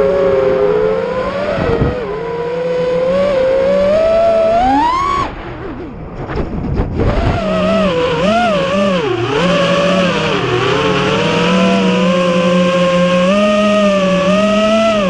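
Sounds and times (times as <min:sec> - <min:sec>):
quadcopter motors whining: 0:00.0 - 0:06.0, 0:07.1 - 0:15.0
low rumble: 0:05.0 - 0:08.2.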